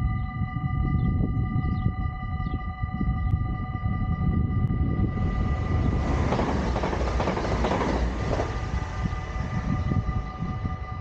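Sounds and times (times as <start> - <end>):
crossing warning bells: 0.0 - 11.0
train passing: 5.0 - 11.0.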